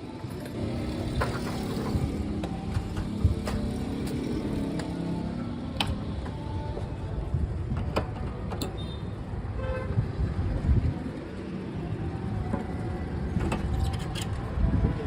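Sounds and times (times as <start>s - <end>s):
vehicle engine hum: 0.0s - 9.4s.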